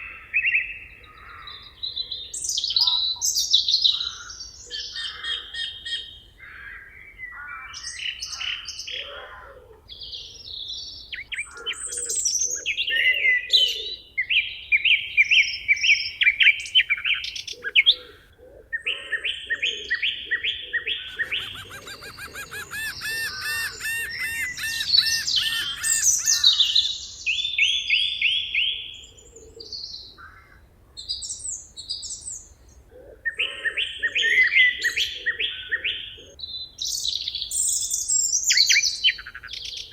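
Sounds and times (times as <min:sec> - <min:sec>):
songbirds chirping and trilling: 0:00.0 - 0:39.9
low pulsing bird call: 0:20.9 - 0:27.3.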